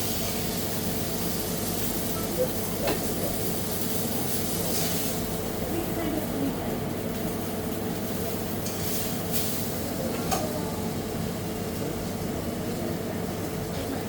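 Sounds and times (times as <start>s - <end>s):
mechanical hum with hiss: 0.0s - 14.0s.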